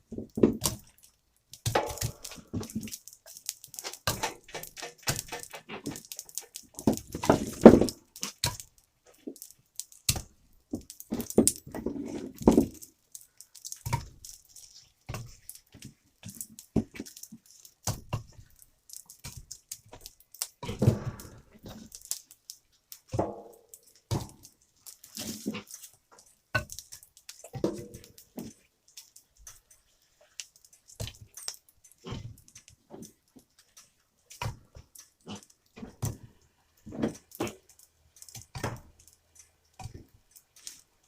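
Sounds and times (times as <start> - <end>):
wood knocks and clunks: 3.8 - 8.0, 20.6 - 21.7.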